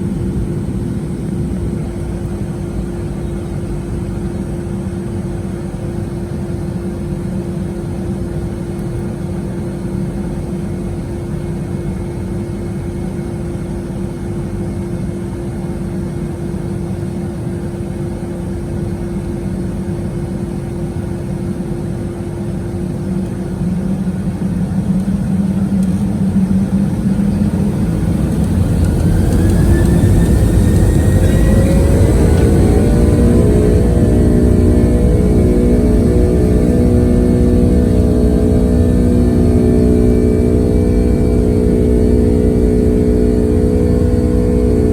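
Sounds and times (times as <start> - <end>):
jet engines spooling up: 23.0 - 44.9.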